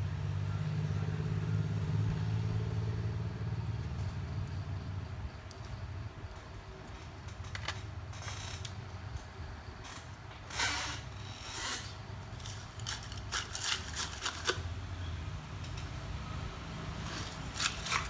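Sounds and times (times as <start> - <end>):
tool scraping glue: 17.1 - 18.0.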